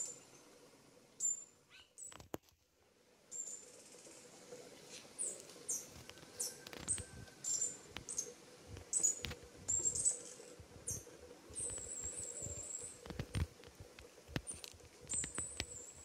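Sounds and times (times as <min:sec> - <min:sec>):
small birds chirping: 0:00.0 - 0:00.6, 0:01.2 - 0:02.3, 0:03.3 - 0:16.0
bird trill: 0:01.2 - 0:02.2, 0:05.2 - 0:13.0
camera handling rustles: 0:13.1 - 0:13.6.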